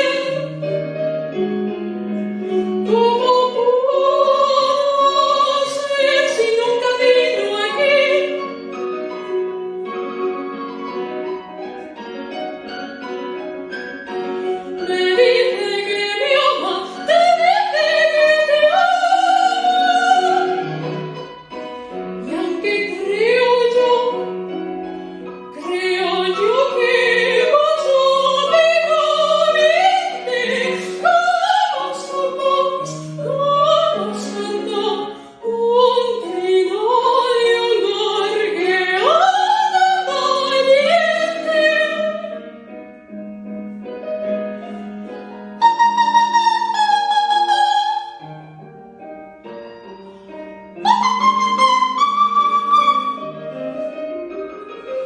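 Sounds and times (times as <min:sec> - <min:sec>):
woman singing operatic soprano: 0:00.0 - 0:00.7, 0:02.6 - 0:08.5, 0:14.7 - 0:20.8, 0:22.2 - 0:24.3, 0:25.5 - 0:42.4, 0:45.6 - 0:48.3, 0:50.8 - 0:53.2
piano accompaniment: 0:00.0 - 0:55.0.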